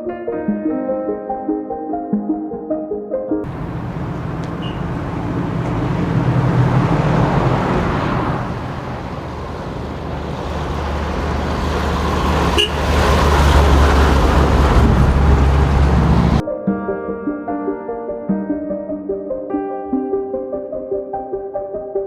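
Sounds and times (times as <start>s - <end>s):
truck diesel engine running: 3.5s - 16.4s.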